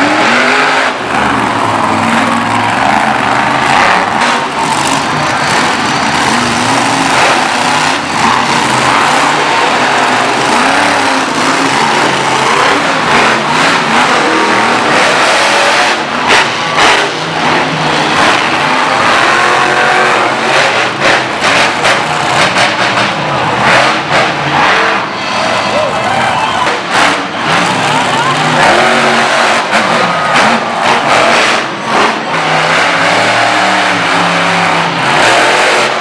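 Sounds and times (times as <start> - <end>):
monster truck engine revving: 0.0 - 36.0.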